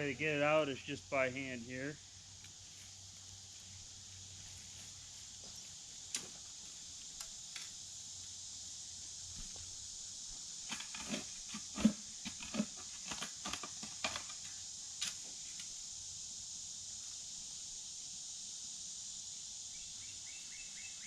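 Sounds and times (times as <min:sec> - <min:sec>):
insects hissing: 0:00.0 - 0:21.0
hands scraping soil: 0:10.6 - 0:14.4.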